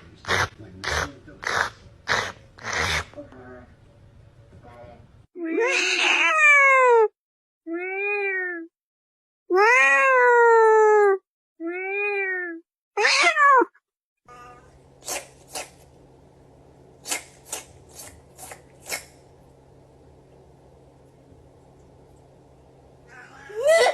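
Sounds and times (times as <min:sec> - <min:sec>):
cat meowing: 0:05.6 - 0:07.1, 0:09.5 - 0:10.5, 0:11.7 - 0:13.7, 0:14.3 - 0:14.8, 0:23.1 - 0:23.7
faint hum: 0:14.3 - 0:23.9.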